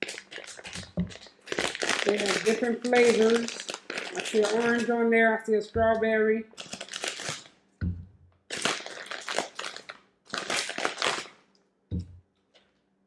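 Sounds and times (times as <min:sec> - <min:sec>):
plastic packaging crackling: 0:00.0 - 0:05.1, 0:06.5 - 0:07.6, 0:08.5 - 0:11.5
soft thumps: 0:07.8 - 0:08.2, 0:11.9 - 0:12.2.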